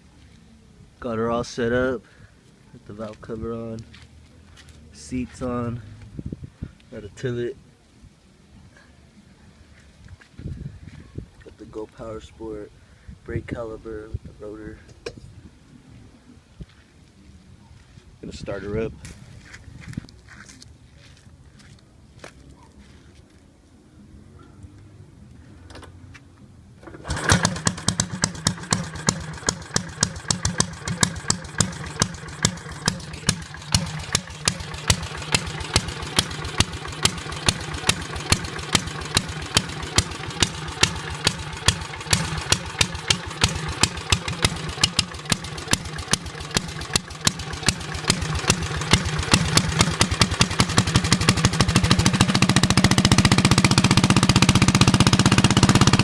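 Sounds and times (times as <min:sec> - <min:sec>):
kart engine popping: 0:26.8 - 0:56.0.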